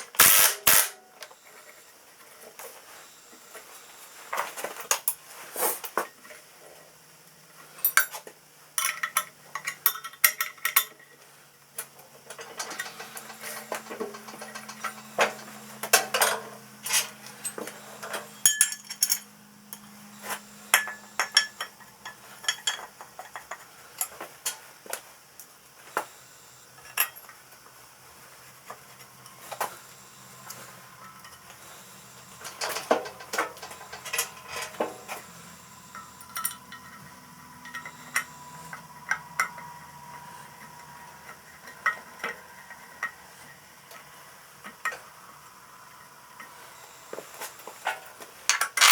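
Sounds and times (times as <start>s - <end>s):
metallic clinks of hand tools: 16.2s - 19.3s.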